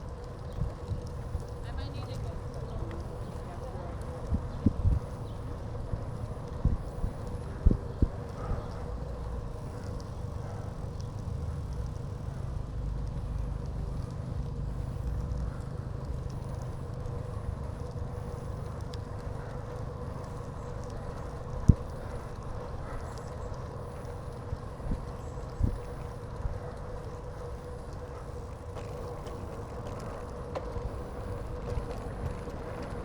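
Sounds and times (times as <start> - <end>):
bicycle tyres rumbling on path: 0.0 - 33.0
wind on microphone: 0.4 - 10.2.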